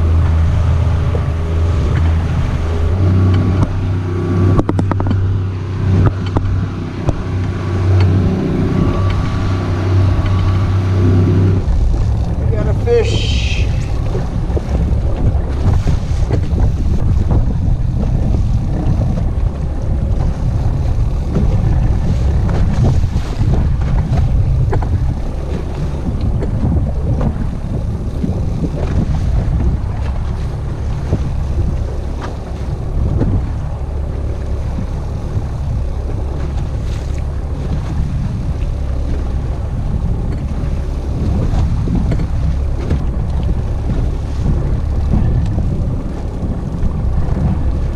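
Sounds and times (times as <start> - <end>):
boat motor running: 0.0 - 47.9
wind buffeting microphone: 0.0 - 47.9.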